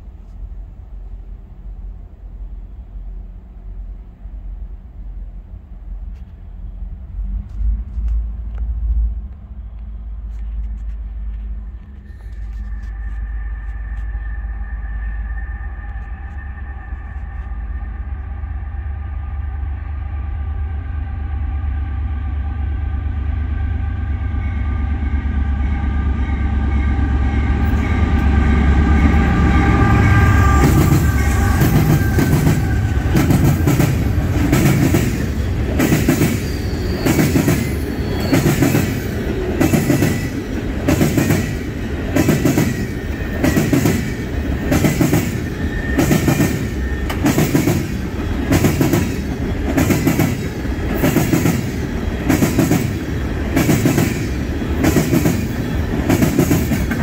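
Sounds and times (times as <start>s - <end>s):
engine and rail rumble: 0.0s - 57.0s
locomotive chime air horn: 12.0s - 34.3s, 35.0s - 39.1s.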